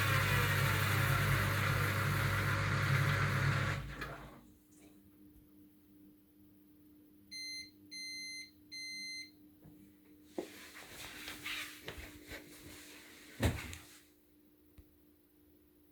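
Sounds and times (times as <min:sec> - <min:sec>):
washing machine beeps: 0:07.3 - 0:09.4.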